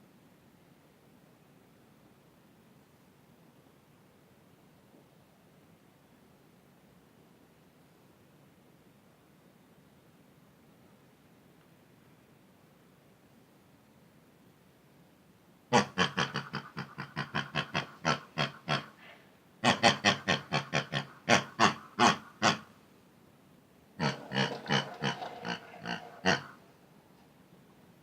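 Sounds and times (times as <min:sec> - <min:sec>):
pig grunting: 0:15.7 - 0:22.7, 0:24.0 - 0:26.7.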